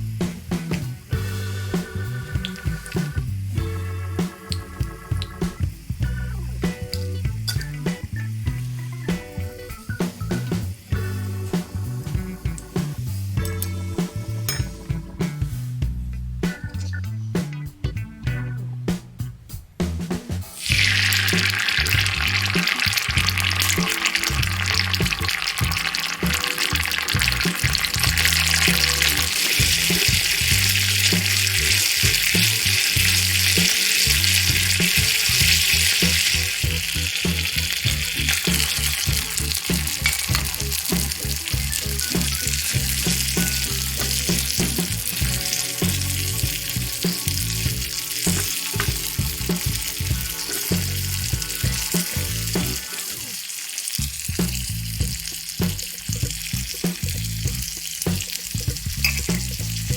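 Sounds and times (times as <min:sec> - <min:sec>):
background music: 0:00.0 - 0:59.9
food sizzling in oil: 0:20.6 - 0:59.9.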